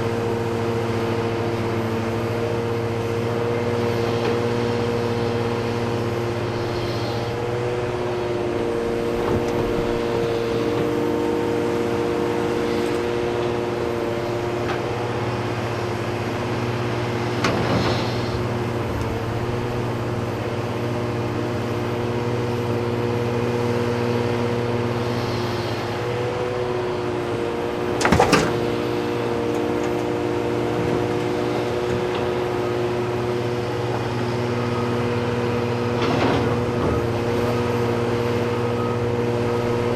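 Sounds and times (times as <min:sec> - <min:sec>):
diesel earthmoving equipment running: 0:00.0 - 0:39.9.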